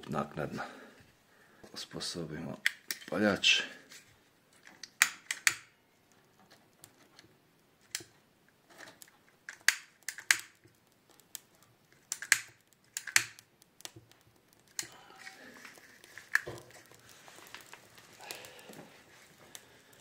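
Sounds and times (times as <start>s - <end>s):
hand lighter clicking: 9.5s - 10.6s, 12.1s - 13.5s.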